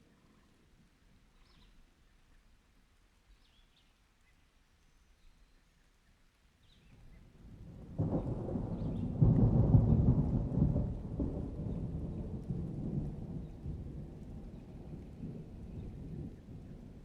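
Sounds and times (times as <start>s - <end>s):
thunder rumbling: 7.4s - 17.0s.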